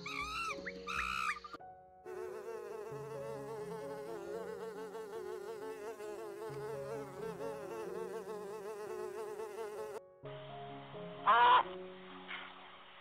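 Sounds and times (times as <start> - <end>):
honeybees buzzing: 2.1 - 10.0.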